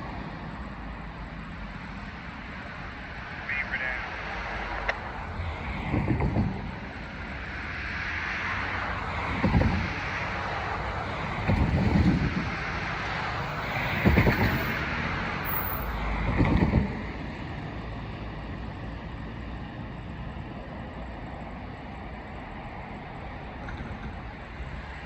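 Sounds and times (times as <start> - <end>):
freight train rumbling on rails: 0.0 - 25.0.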